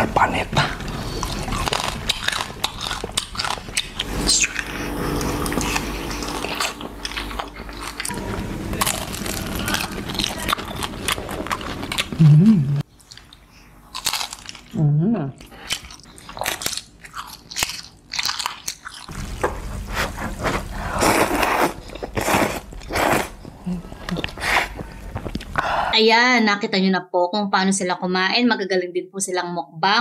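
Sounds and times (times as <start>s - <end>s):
people chewing crunchy food: 0.0s - 25.9s
brief loud hum: 4.0s - 11.1s.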